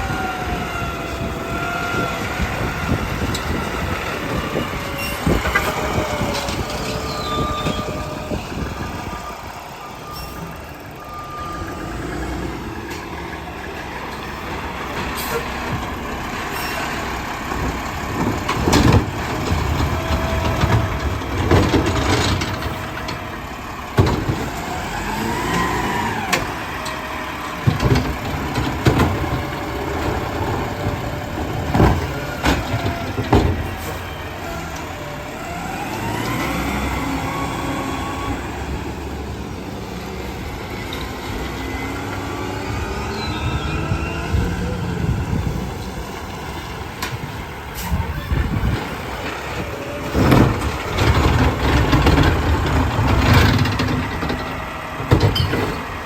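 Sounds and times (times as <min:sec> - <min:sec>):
garbage truck running: 0:00.0 - 0:56.0
hydraulic packer compacting trash: 0:00.0 - 0:56.0
squeals: 0:04.8 - 0:05.4, 0:06.0 - 0:09.2, 0:09.9 - 0:11.9, 0:16.5 - 0:17.0, 0:43.0 - 0:44.7, 0:55.2 - 0:55.9
metal clanks and bangs: 0:17.6 - 0:23.3, 0:27.6 - 0:34.2, 0:47.0 - 0:56.0.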